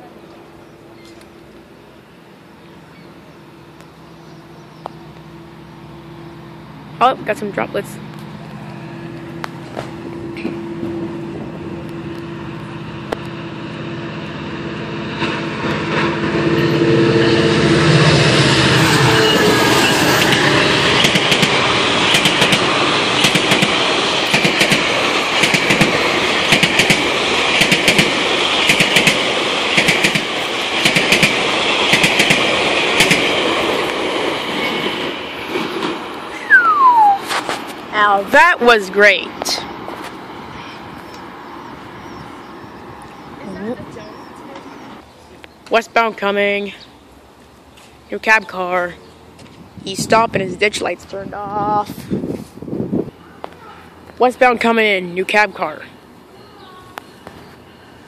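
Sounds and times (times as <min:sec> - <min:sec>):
train passing at speed: 0:00.0 - 0:58.0
wheels clacking over rail joints: 0:20.2 - 0:36.3.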